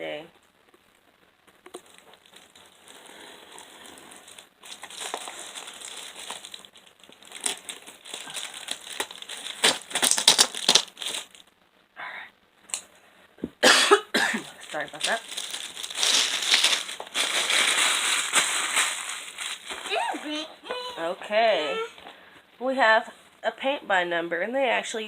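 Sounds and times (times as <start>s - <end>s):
parcel packaging crinkling: 0.4s - 11.5s, 14.4s - 20.4s.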